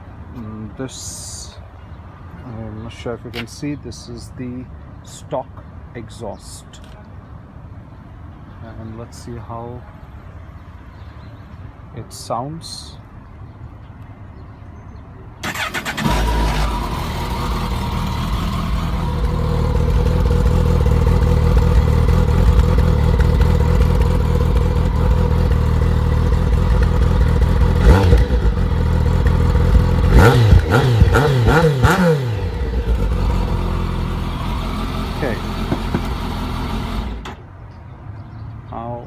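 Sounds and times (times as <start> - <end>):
motorcycle engine revving: 15.4 - 37.4
motorcycle engine starting: 15.4 - 37.4
motorcycle engine idling: 15.5 - 37.4.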